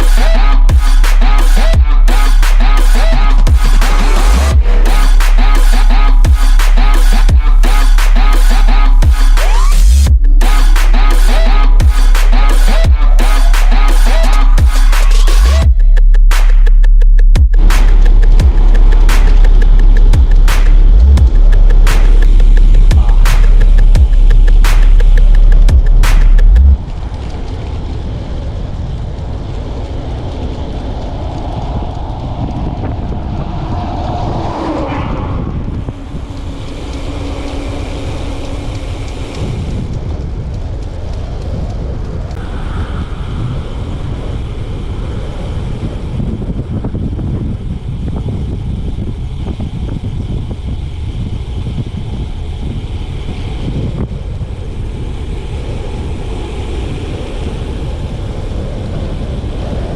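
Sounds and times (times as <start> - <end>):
vehicle drone: 0.0 - 59.9
wind rushing over microphone: 0.0 - 59.9.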